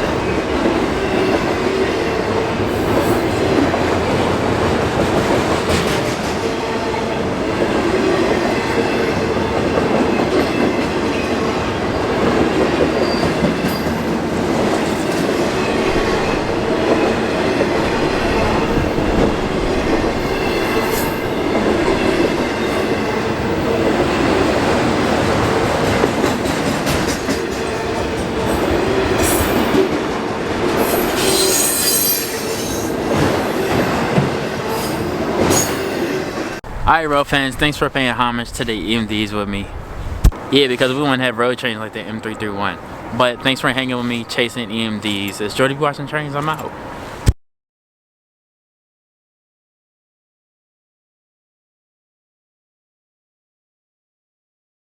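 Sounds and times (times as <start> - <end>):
freight train wheels clacking: 0.0 - 36.6
high-pitched wheel squeals: 30.9 - 32.9.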